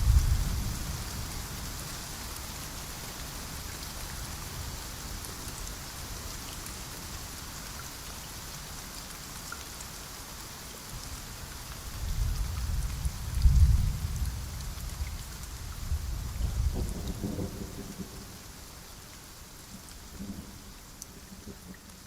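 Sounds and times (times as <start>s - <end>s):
thunder rumbling: 0.0s - 1.4s, 13.0s - 15.1s, 15.8s - 18.4s
heavy rain hissing: 0.0s - 22.0s.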